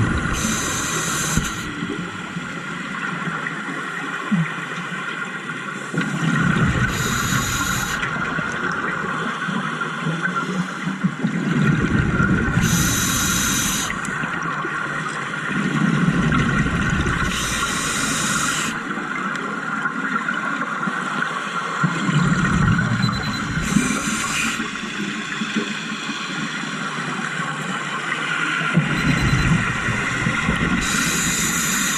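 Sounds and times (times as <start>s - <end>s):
bubbling of exhaled bubbles: 0.0s - 2.3s, 6.2s - 8.9s, 11.3s - 14.6s, 15.5s - 18.2s, 21.9s - 24.9s, 28.8s - 31.6s
regulator air hiss: 0.3s - 1.9s, 6.9s - 8.1s, 12.6s - 14.1s, 17.3s - 18.8s, 23.6s - 26.9s, 30.8s - 31.9s.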